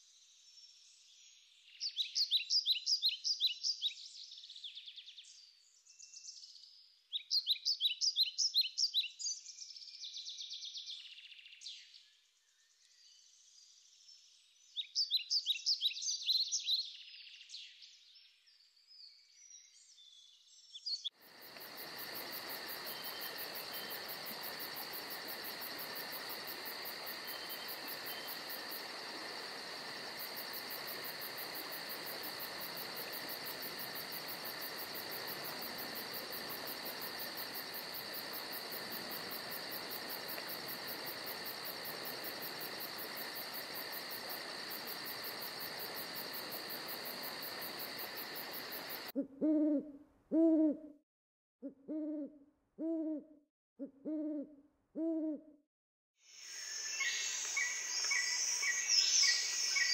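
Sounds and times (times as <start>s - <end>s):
insects chirping: 21.1s - 49.2s, 56.3s - 59.9s
bird chirps: 56.4s - 59.9s.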